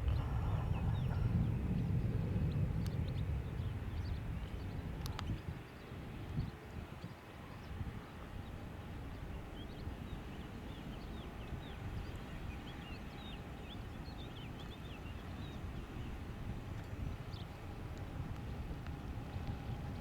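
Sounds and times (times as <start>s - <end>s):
jet engines rumbling and whining: 0.0s - 5.3s, 11.2s - 20.0s.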